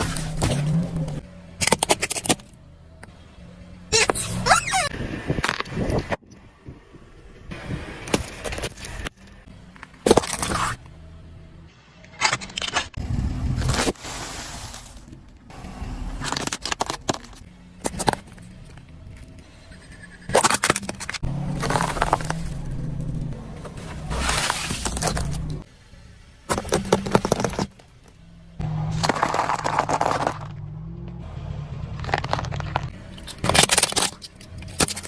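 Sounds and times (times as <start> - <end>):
objects crunching under tyres: 0.0 - 2.6, 8.0 - 10.9, 12.0 - 19.5, 20.3 - 25.7, 26.4 - 35.0
car engine hum: 0.0 - 12.0, 15.0 - 35.0.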